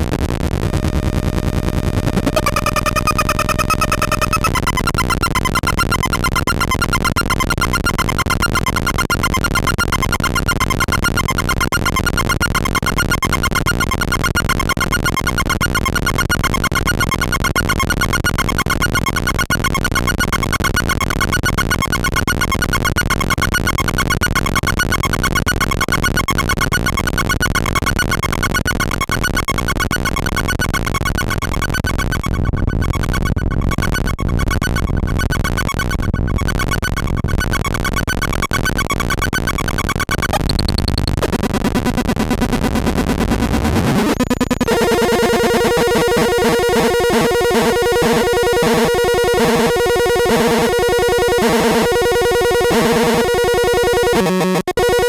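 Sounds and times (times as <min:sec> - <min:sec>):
harsh synthesizer drone: 0:00.0 - 0:04.7, 0:40.3 - 0:55.0.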